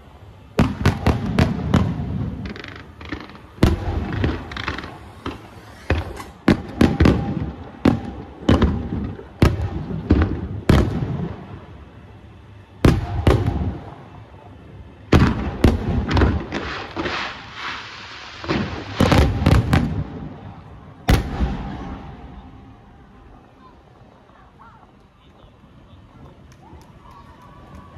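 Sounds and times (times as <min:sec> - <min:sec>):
fireworks bursting with bangs: 0:00.4 - 0:22.8.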